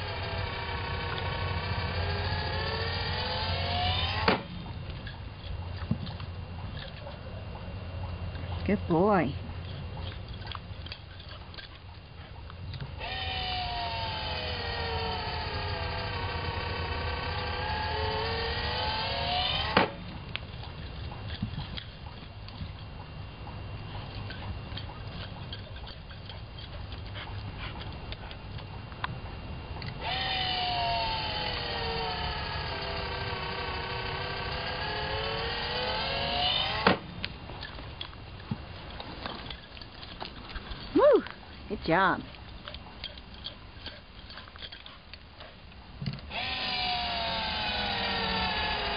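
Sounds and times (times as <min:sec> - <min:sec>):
ball launcher motor whining: 0:00.0 - 0:07.0, 0:12.6 - 0:43.6, 0:46.0 - 0:48.9.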